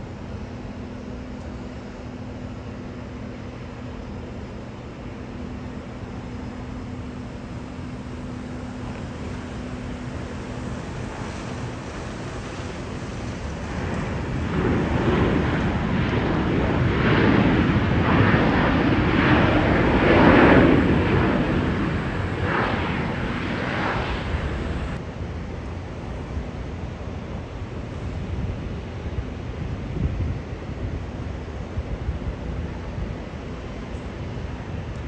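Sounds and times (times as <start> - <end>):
jet airliner passing: 0.0 - 35.0
wind on microphone: 8.6 - 25.1, 27.7 - 35.0.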